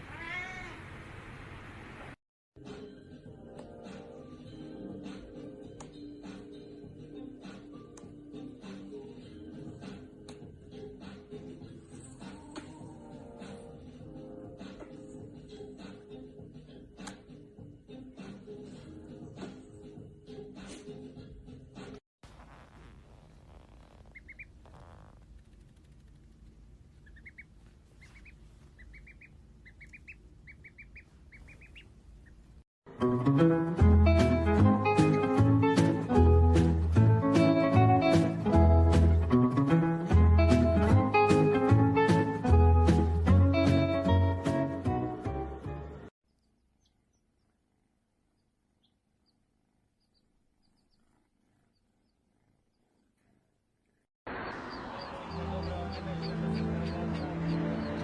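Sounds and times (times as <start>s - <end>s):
small animal high-pitched peeps: 23.5s - 32.4s, 46.3s - 47.6s, 48.3s - 53.3s
high bird chirps: 23.9s - 25.1s, 27.0s - 32.4s
plucked guitar music: 33.0s - 45.2s.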